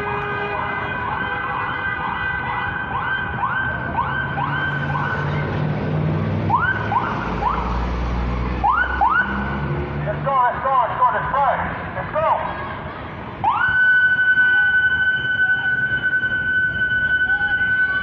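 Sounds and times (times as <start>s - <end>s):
police siren yelping: 2.7s - 5.5s, 6.5s - 7.8s, 8.6s - 9.4s, 13.4s - 18.0s.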